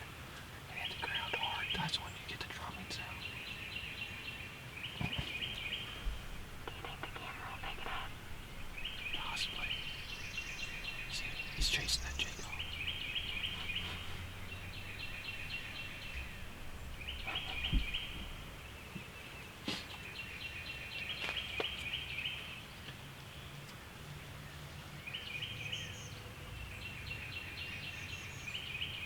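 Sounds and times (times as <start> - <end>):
low outdoor rumble: 0.0 - 20.4.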